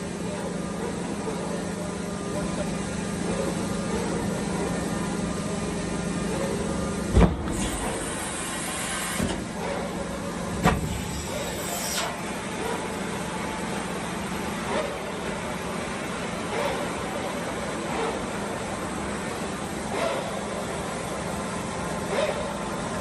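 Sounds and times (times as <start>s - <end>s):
loud mechanical clunks: 7.1s - 9.6s, 10.5s - 12.2s
hydraulic hiss: 7.5s - 9.4s, 10.6s - 12.2s.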